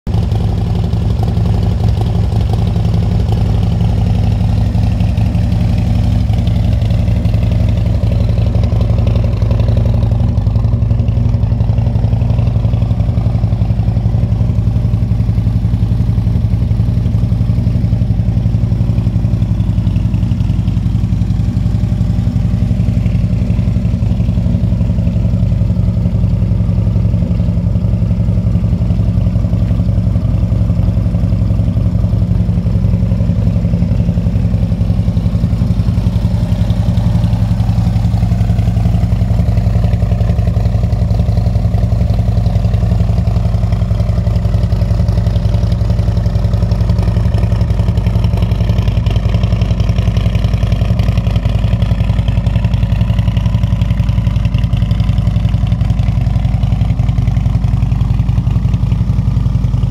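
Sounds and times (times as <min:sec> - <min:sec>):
motorcycle engine idling: 0:00.1 - 0:59.9.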